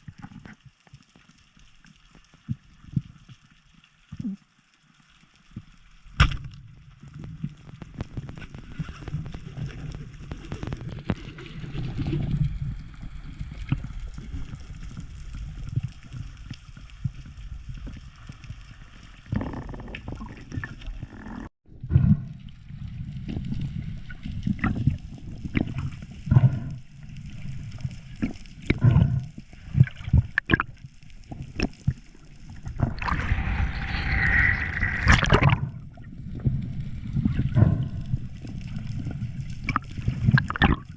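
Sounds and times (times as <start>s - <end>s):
muffled underwater gurgling: 23.3s - 30.7s, 31.4s - 40.9s.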